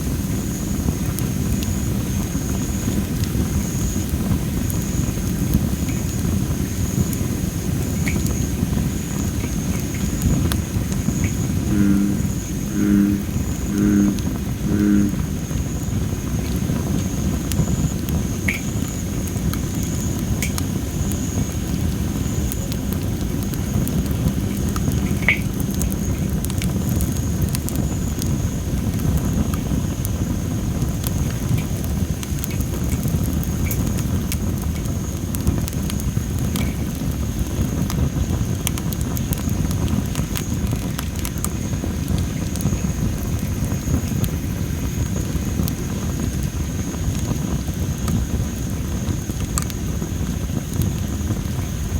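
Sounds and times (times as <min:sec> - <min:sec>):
campfire crackling and popping: 0:00.0 - 0:51.9
thin high tone: 0:11.6 - 0:15.3.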